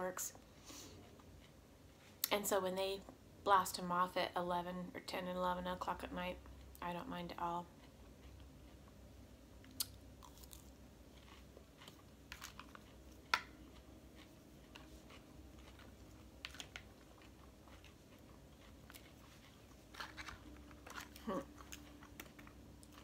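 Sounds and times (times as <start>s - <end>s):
person chewing crunchy salad: 7.7s - 23.0s.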